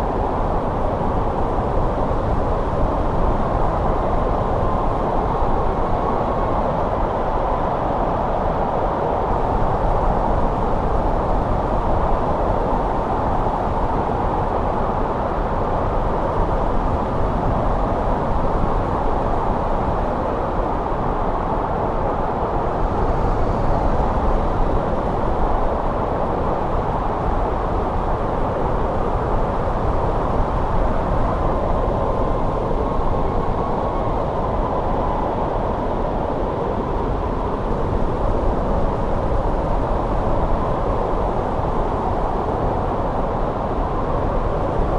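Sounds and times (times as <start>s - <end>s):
snowstorm wind rushing: 0.0s - 44.9s.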